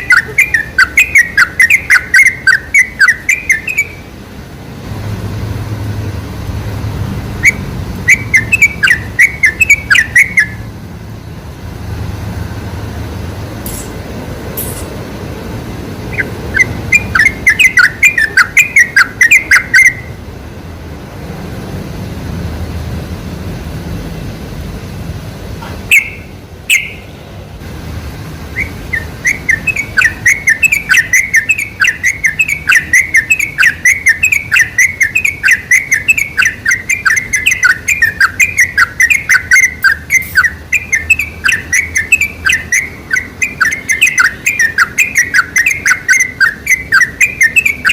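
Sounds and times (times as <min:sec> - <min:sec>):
bird singing bubbly notes: 0:00.0 - 0:04.0, 0:07.4 - 0:10.6, 0:16.1 - 0:20.1, 0:25.9 - 0:27.0, 0:28.6 - 0:47.9
sharp bird calls: 0:00.0 - 0:04.1, 0:07.4 - 0:10.7, 0:16.1 - 0:20.2, 0:25.9 - 0:27.1, 0:28.5 - 0:47.9.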